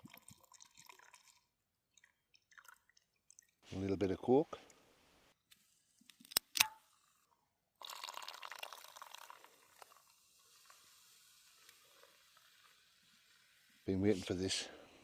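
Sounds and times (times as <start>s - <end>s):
cola pouring into a cup: 0.0s - 3.6s, 7.8s - 13.7s.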